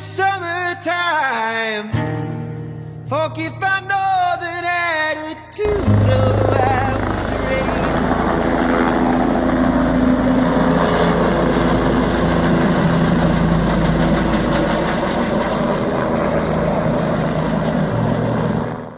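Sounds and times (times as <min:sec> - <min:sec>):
vehicle engine humming: 0:05.7 - 0:18.7.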